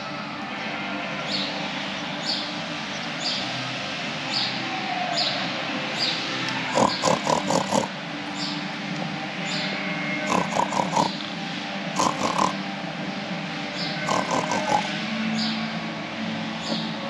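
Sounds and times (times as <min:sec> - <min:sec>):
loud short animal calls: 0:06.6 - 0:07.9, 0:10.2 - 0:11.2, 0:12.0 - 0:12.6, 0:14.0 - 0:14.9.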